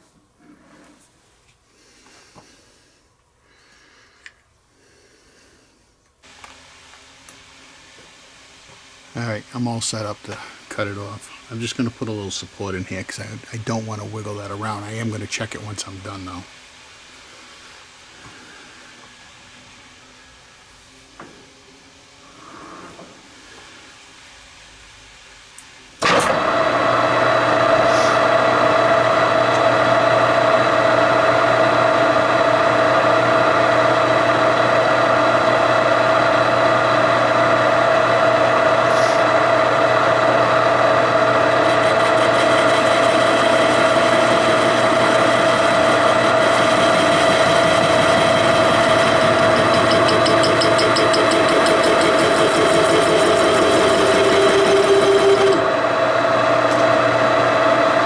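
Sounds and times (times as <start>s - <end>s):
metal lathe whine: 26.0s - 58.0s
cutting tool hissing: 27.6s - 29.7s, 38.1s - 55.8s.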